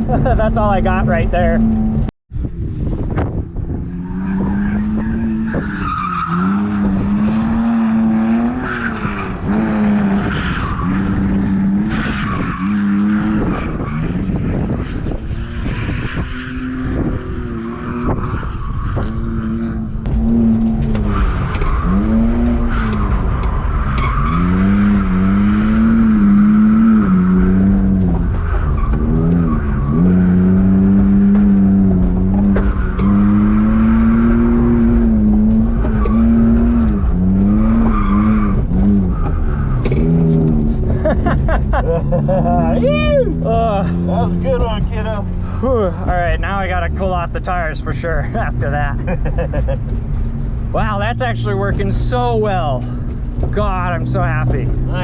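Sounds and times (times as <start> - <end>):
car engine revving: 0.0 - 55.0
tyres squealing and skidding: 3.8 - 19.7, 20.8 - 47.1.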